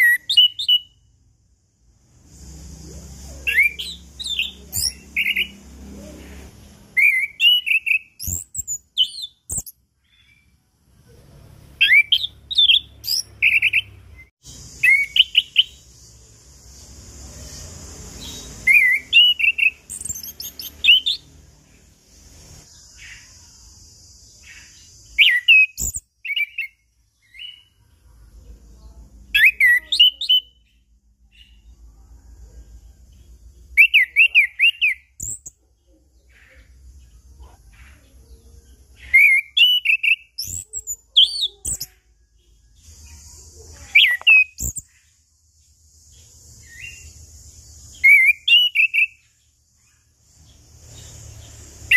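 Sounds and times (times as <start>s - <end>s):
thrush singing whistled notes: 0.0s - 1.3s, 2.2s - 10.6s, 11.8s - 21.4s, 24.3s - 27.8s, 29.3s - 31.8s, 33.6s - 35.6s, 39.0s - 42.1s, 42.9s - 45.0s, 46.5s - 50.0s.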